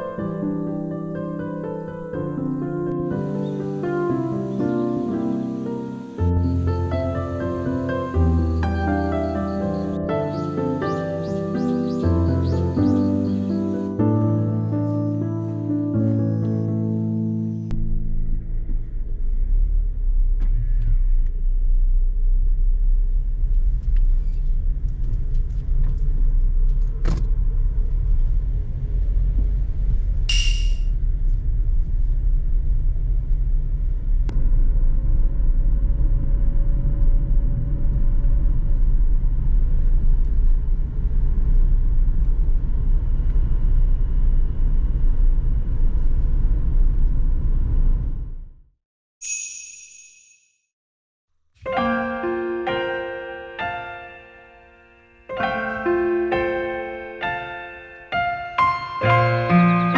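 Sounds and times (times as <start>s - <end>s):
road rumble inside car: 17.8s - 30.3s, 31.0s - 48.6s
brief high jingle: 30.3s - 30.8s, 49.2s - 50.5s.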